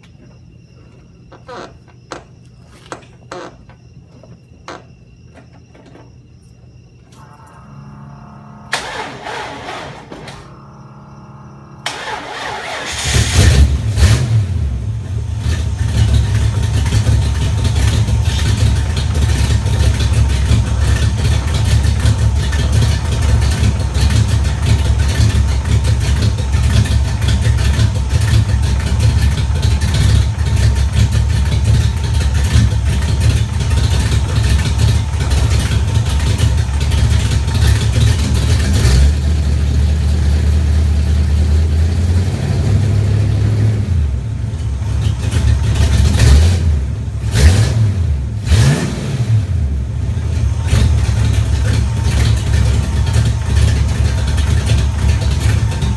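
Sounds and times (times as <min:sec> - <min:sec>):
car engine cranking and starting: 0:08.4 - 0:55.9
engine idling with rapid ticking: 0:11.8 - 0:42.2, 0:42.8 - 0:48.8, 0:49.8 - 0:55.9.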